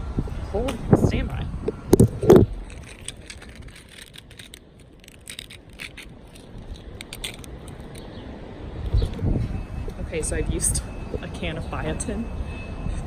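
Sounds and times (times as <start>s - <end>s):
objects being handled: 0.7s - 8.2s.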